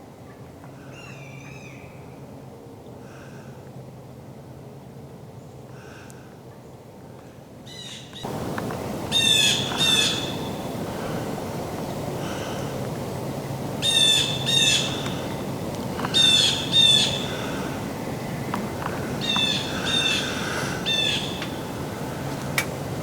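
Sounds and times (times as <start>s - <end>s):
bird squawking: 9.1s - 10.7s, 13.8s - 18.3s, 19.0s - 21.7s.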